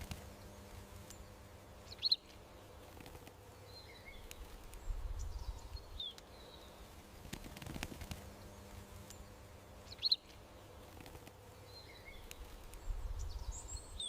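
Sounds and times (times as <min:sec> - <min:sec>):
faint bird chirps: 0:00.3 - 0:02.8, 0:08.4 - 0:10.9, 0:11.5 - 0:14.0
faint clicks: 0:12.2 - 0:12.9.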